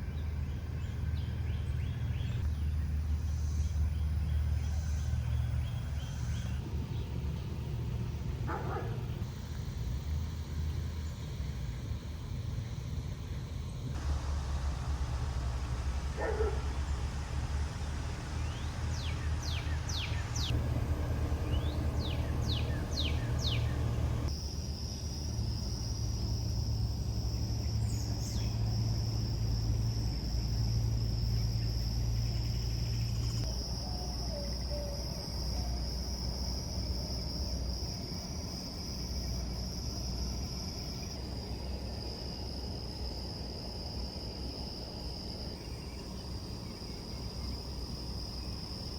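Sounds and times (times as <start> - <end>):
insect drone: 0.0 - 48.9
low rumble: 9.9 - 24.3
bird chirping: 14.0 - 24.3.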